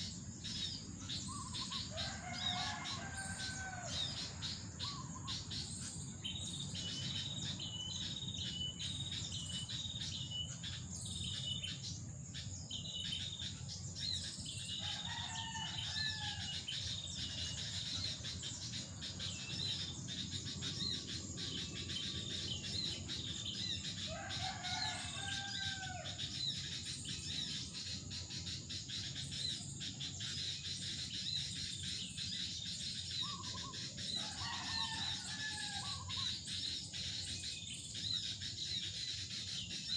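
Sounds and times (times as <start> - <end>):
lower bird calls: 0.0 - 11.8, 13.0 - 39.9
insect drone: 0.0 - 39.9
small birds chirping: 0.0 - 39.9.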